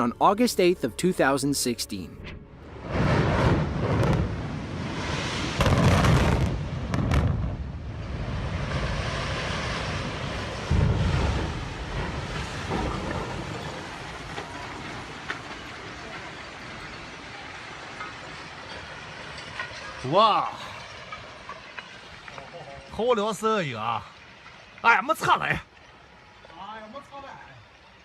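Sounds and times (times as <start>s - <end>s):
heavy explosive blast: 2.4s - 14.8s
rumble of building collapse: 2.4s - 25.0s.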